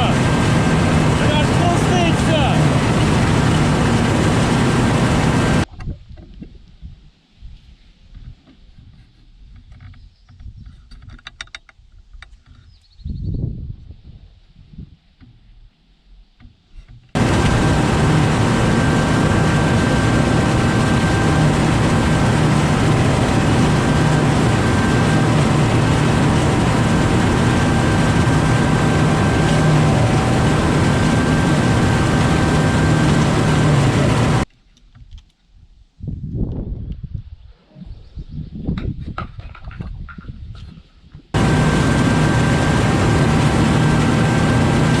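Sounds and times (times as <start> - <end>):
tractor engine running: 0.0 - 5.7, 17.2 - 34.4, 41.4 - 45.0.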